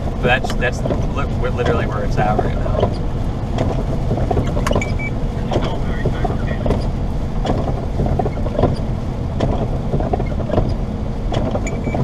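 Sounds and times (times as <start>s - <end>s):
car cabin road rumble: 0.0s - 12.0s
small knocks and rattles: 5.5s - 12.0s.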